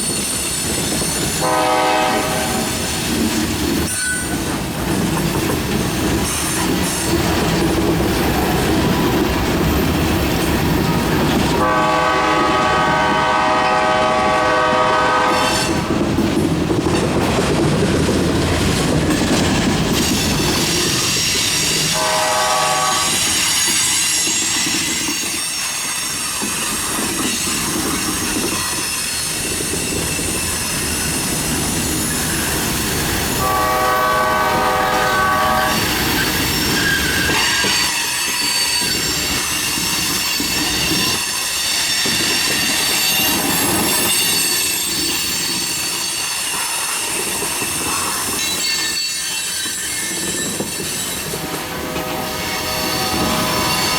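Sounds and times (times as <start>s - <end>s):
steel wheels squealing: 0.0s - 1.5s, 2.6s - 11.7s, 18.9s - 22.1s, 22.8s - 34.0s, 34.6s - 53.9s
freight train rolling past: 0.0s - 53.9s
locomotive horn: 1.4s - 2.9s, 11.5s - 16.0s, 21.9s - 23.4s, 33.4s - 35.9s, 51.3s - 53.9s.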